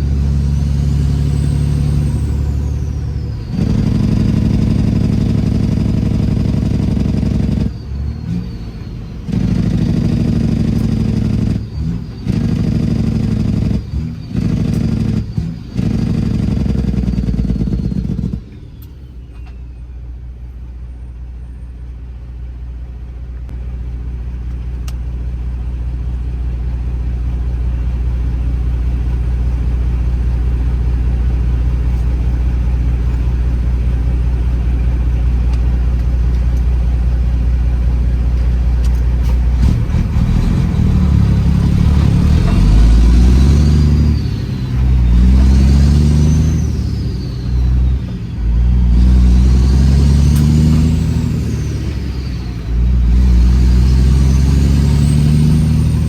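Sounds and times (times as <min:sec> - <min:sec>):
turbo whistle: 0:00.0 - 0:20.2, 0:39.6 - 0:56.0
diesel truck engine droning: 0:00.0 - 0:56.0.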